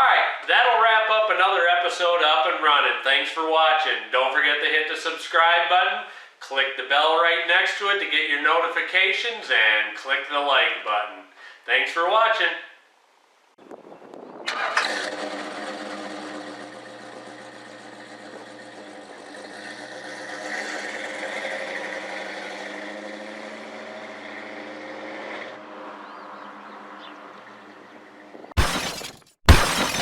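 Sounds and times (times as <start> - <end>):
car engine starting and running: 14.4 - 30.0.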